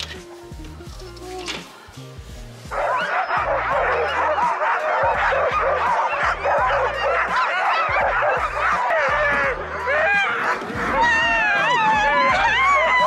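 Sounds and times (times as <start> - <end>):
music with low bass beat: 2.0 - 11.2
huskies yelping and howling: 2.7 - 13.0.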